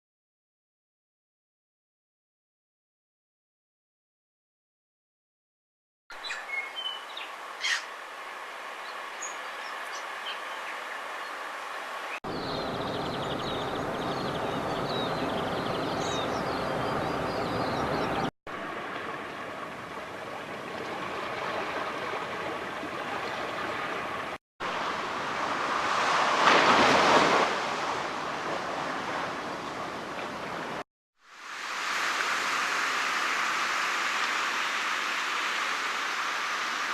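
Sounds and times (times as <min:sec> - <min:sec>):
birds chirping: 0:06.1 - 0:08.0, 0:08.8 - 0:18.3
ocean waves breaking: 0:09.6 - 0:36.9.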